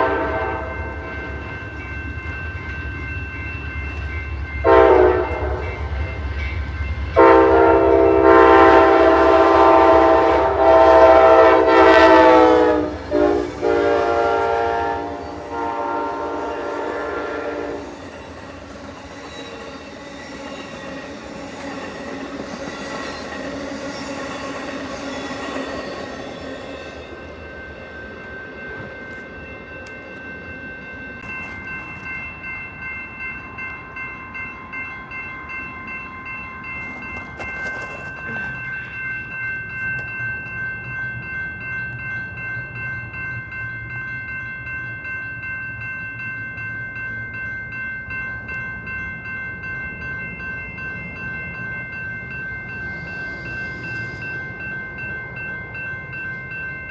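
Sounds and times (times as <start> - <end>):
train horn blasts: 0.0 - 1.0, 4.6 - 5.9, 7.2 - 18.0
deep rumble of locomotive: 0.0 - 56.9.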